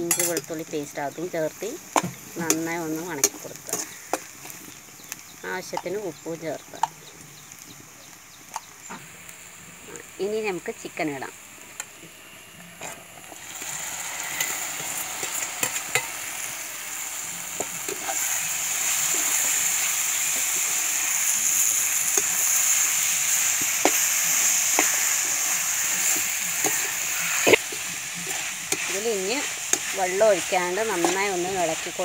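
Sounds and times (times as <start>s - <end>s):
chicken sizzling in hot oil: 0.0s - 32.0s
spoon stirring against pan: 2.0s - 6.0s, 21.5s - 32.0s.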